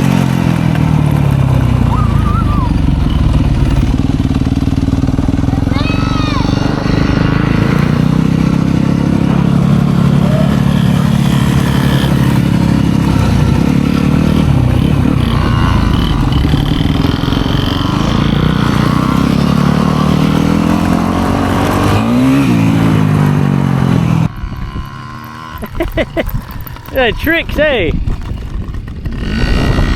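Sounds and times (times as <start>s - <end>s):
dirt bike engine running: 0.0s - 29.9s
wind noise: 6.6s - 19.7s, 24.2s - 29.9s.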